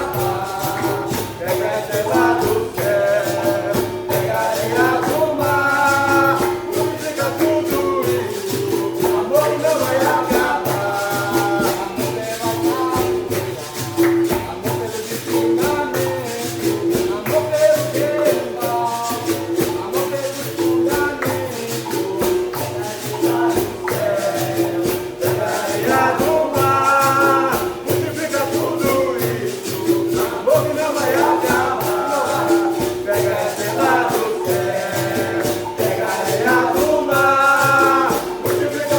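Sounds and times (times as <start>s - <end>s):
group singing: 0.0s - 38.9s
pandeiro and percussion rhythm: 0.0s - 38.9s.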